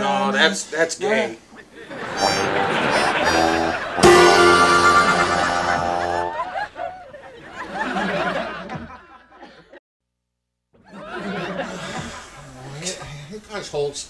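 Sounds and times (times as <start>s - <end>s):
people chuckling: 1.7s - 9.8s, 10.8s - 13.2s
strummed guitar chord: 2.2s - 6.4s.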